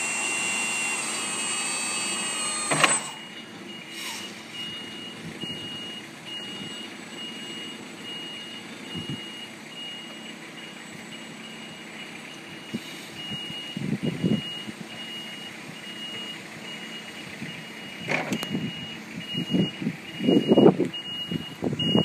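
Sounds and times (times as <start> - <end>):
electric forklift whine: 0.0 - 15.5
short high warning beeps: 0.1 - 22.0
loud clunk: 2.7 - 3.2.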